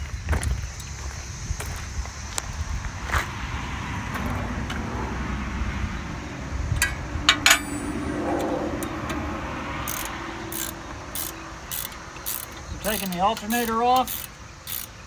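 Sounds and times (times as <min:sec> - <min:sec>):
sharp metallic clicks: 0:06.7 - 0:15.0
hand tools handled against metal: 0:06.8 - 0:09.2, 0:09.9 - 0:15.0.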